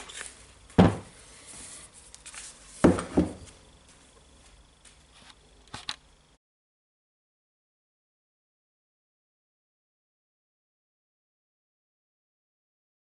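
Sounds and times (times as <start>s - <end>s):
tool knocking on hard surface: 0.8s - 1.1s, 2.8s - 3.5s.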